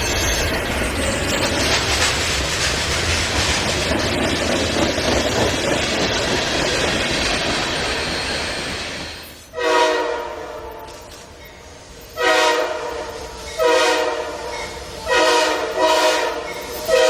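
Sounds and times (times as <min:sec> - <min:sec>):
train wheels on rails: 0:00.0 - 0:17.0
train horn: 0:09.5 - 0:11.2, 0:12.2 - 0:17.0.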